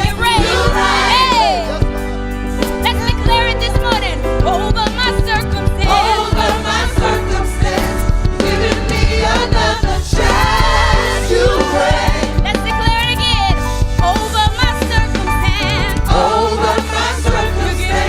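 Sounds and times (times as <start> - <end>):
choir singing: 0.0 - 1.9, 5.8 - 12.5, 16.1 - 18.0
bass-heavy band accompaniment: 0.0 - 18.0.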